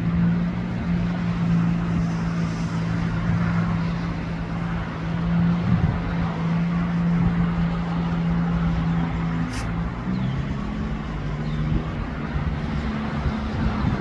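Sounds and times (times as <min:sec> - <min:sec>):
jet ski engines running: 0:00.0 - 0:14.0
brief high hiss: 0:09.5 - 0:09.8.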